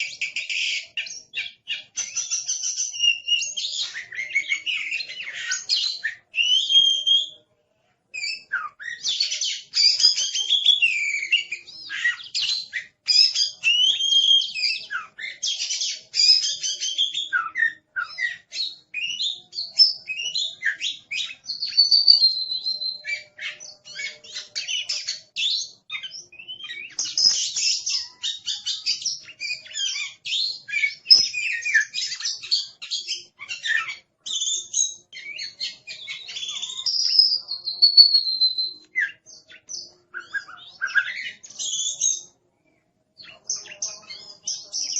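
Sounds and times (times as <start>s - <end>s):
songbird whistles and trills: 0.0s - 7.5s, 8.1s - 42.4s.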